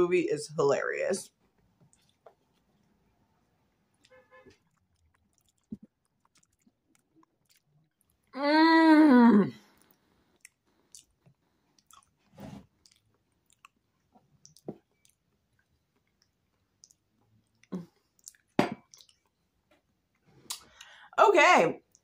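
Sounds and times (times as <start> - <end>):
wet chewing sounds: 1.6 - 3.1, 3.7 - 8.3, 9.7 - 21.0.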